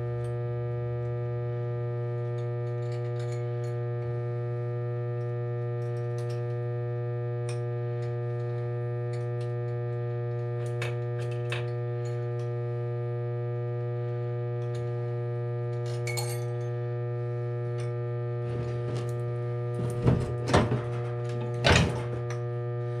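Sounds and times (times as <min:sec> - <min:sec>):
electrical hum: 0:00.0 - 0:23.0
metal parts clinking: 0:19.8 - 0:22.4
metallic clanks: 0:19.8 - 0:22.4.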